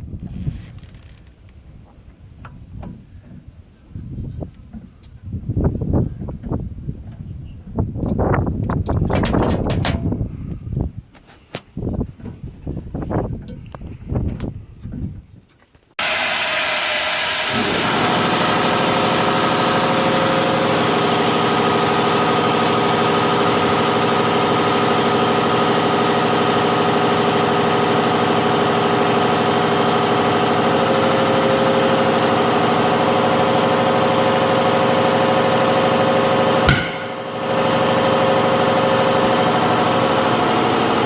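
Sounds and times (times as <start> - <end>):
engine idling: 16.0 - 41.0.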